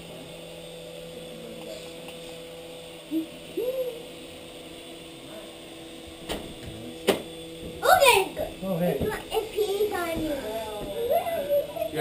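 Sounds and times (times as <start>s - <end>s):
toy helicopter motor humming: 0.0s - 12.0s
hoot-like voice sounds: 3.1s - 4.1s.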